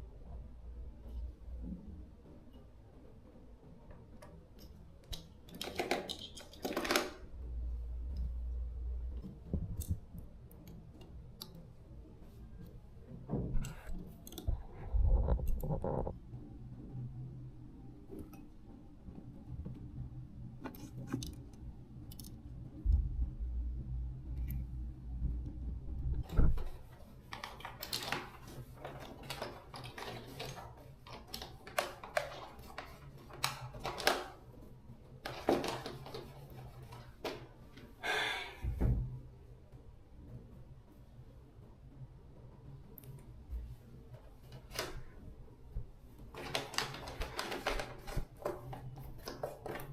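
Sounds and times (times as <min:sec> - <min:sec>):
low steady hum: 0:07.1 - 0:49.9.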